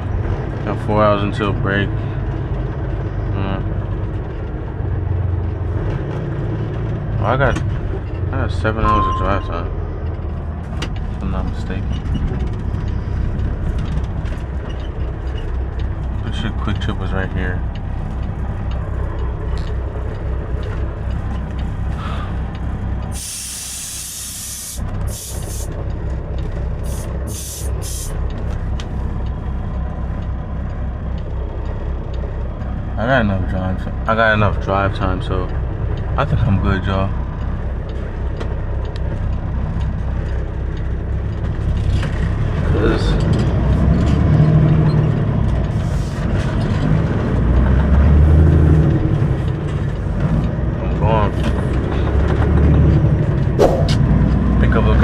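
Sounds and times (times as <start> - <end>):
diesel truck engine rumbling: 0.0 - 55.0
air brake hiss: 23.2 - 25.7, 26.9 - 28.1.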